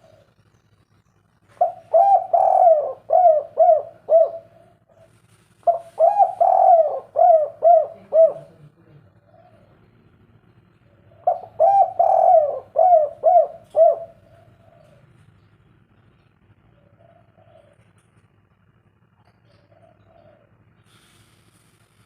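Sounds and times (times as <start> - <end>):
dove cooing: 0.0 - 0.5, 1.5 - 10.0, 10.9 - 15.5, 16.6 - 18.4, 19.2 - 20.8.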